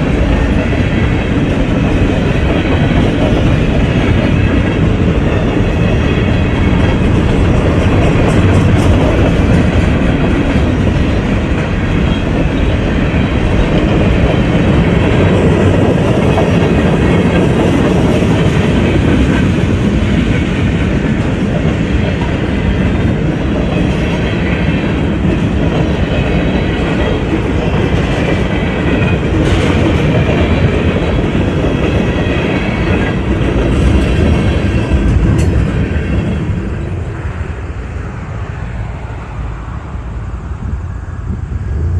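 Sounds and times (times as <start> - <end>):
clickety-clack of rail joints: 0.0 - 41.9
train wheels rumbling on rail: 0.0 - 41.9.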